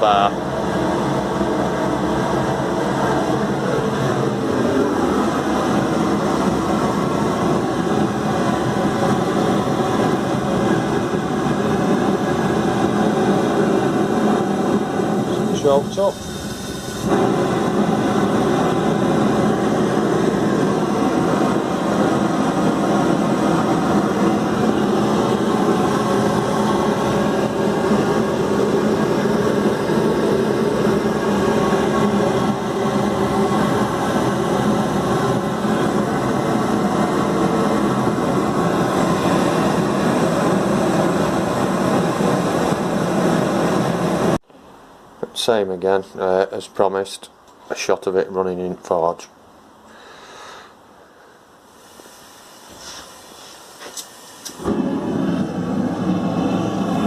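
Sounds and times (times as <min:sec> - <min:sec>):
propane burner flame hissing: 0:00.0 - 0:44.4, 0:49.8 - 0:57.0.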